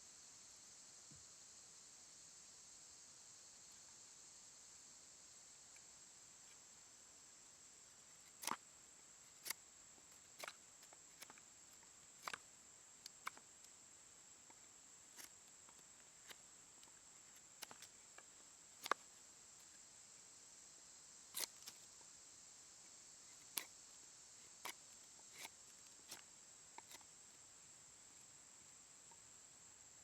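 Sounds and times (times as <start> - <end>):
steady hiss: 0.0 - 30.0
wooden gear clicks and taps: 8.4 - 8.6.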